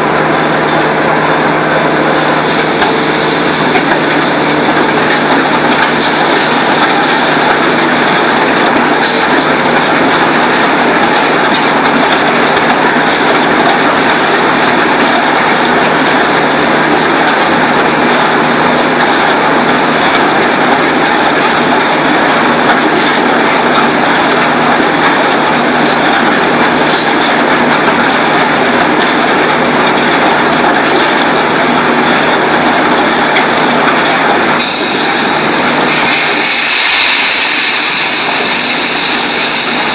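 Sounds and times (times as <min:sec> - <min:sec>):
machinery running: 0:00.0 - 0:39.9.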